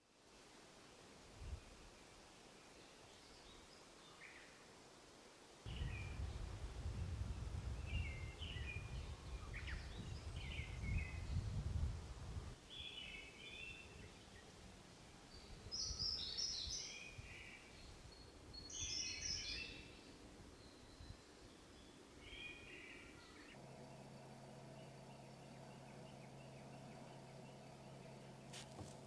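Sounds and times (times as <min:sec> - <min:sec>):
faint background rumble: 0:05.7 - 0:12.9
birds chirping: 0:15.3 - 0:29.0
steady low hum: 0:22.8 - 0:29.0.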